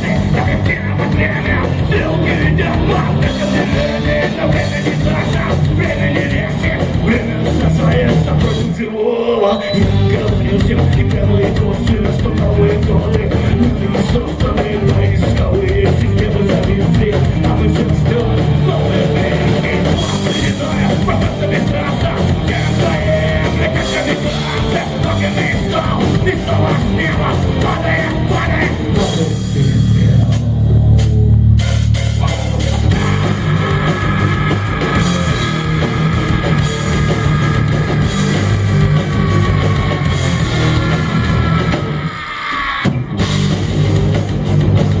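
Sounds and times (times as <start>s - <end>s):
punk rock band playing: 0.0s - 45.0s.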